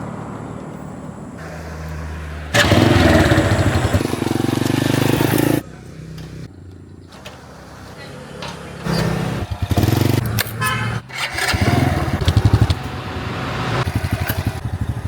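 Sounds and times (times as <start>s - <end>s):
motorcycle engine running: 1.4s - 7.0s, 8.8s - 15.0s.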